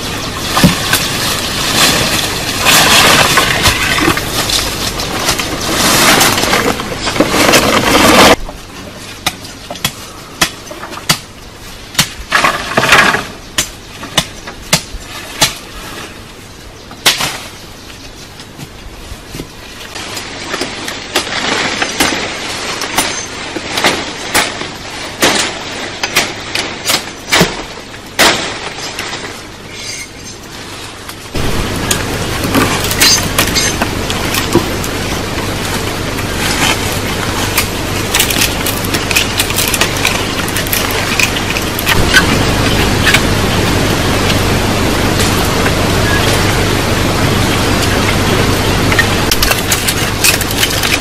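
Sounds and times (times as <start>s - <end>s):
steady noise: 0.0s - 8.5s, 30.9s - 51.0s
wood being chopped: 12.0s - 15.6s.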